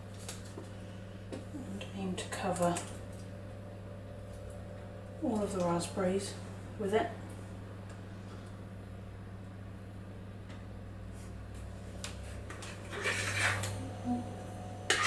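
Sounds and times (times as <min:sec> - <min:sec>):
steady low hum: 0:00.0 - 0:15.0
spoon scraping mixing bowl: 0:12.5 - 0:13.8.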